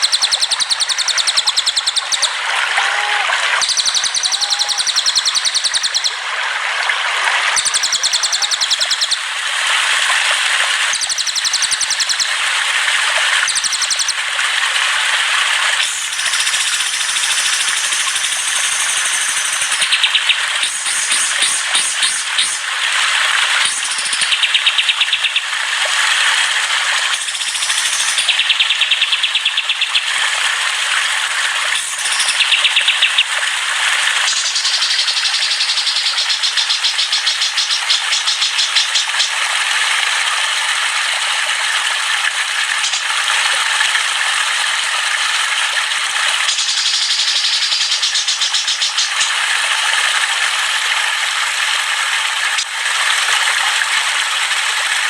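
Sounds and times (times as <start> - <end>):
songbird high trill: 0.0 - 2.4, 3.6 - 6.2, 7.6 - 9.3, 10.9 - 12.3, 13.4 - 14.1, 15.8 - 22.7, 23.6 - 25.5, 27.1 - 30.1, 31.8 - 33.3, 34.3 - 39.4, 46.5 - 49.4
running water: 0.0 - 55.0
songbirds chirping: 7.6 - 9.2, 19.0 - 22.6, 32.0 - 33.3.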